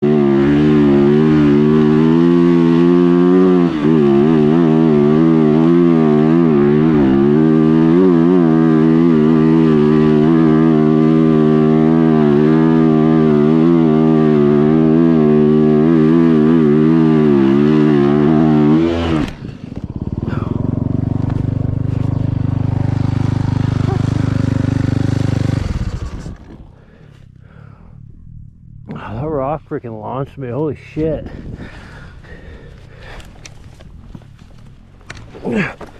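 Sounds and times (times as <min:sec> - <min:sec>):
motorcycle engine revving: 0:00.0 - 0:29.6
lower steady engine note: 0:00.0 - 0:35.9.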